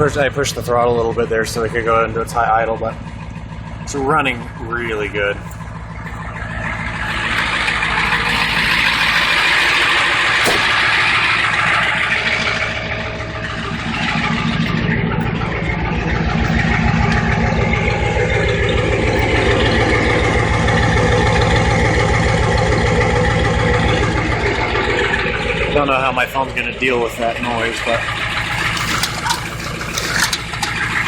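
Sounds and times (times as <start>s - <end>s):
diesel engine idling with clatter: 0.0s - 31.0s.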